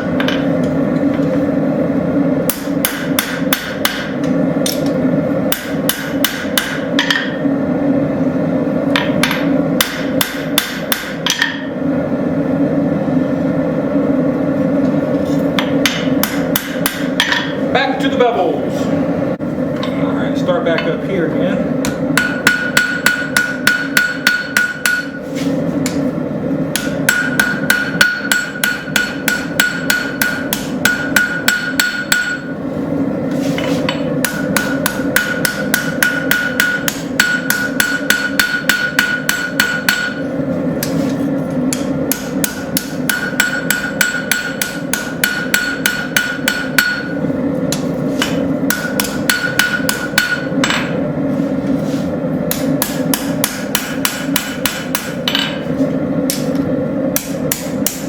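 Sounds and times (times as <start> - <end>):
hammer blows on anvil: 21.8 - 25.2, 26.7 - 32.6, 33.9 - 40.2, 41.7 - 51.0, 52.5 - 55.7
anvil ringing: 22.2 - 25.2, 26.7 - 32.5, 34.2 - 40.2, 41.7 - 47.2, 48.2 - 51.0.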